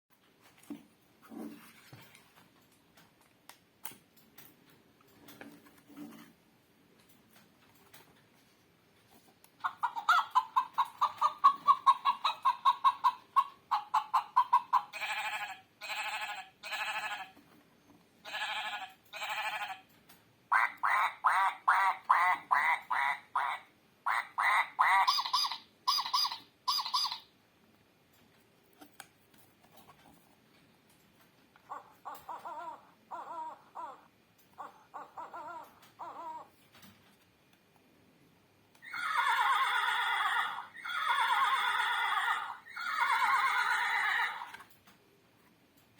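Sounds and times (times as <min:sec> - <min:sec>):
recorded animal calls: 0:09.6 - 0:17.4, 0:18.2 - 0:19.9, 0:20.5 - 0:27.3, 0:31.6 - 0:36.6, 0:38.8 - 0:44.7.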